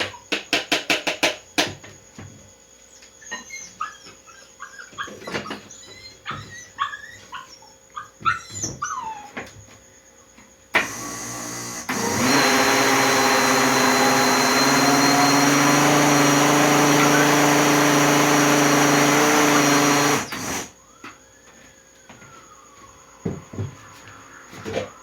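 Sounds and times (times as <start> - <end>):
blender motor running: 10.8 - 20.7.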